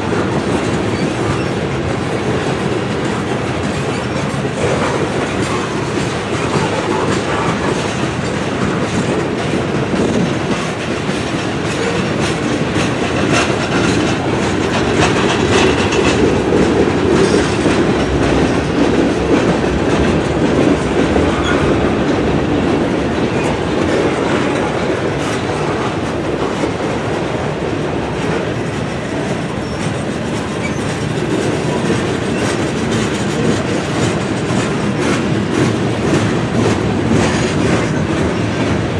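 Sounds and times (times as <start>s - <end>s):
freight train wheels clicking: 0.0s - 38.9s.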